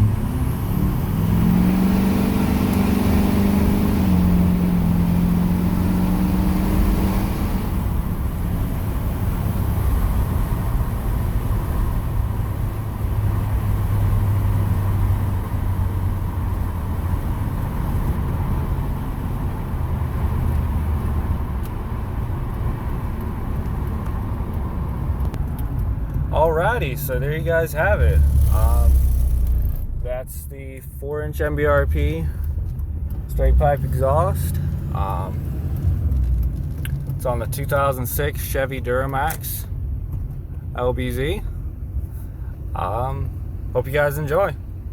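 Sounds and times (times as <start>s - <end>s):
diesel exhaust drone from inside cab: 0.0s - 44.9s.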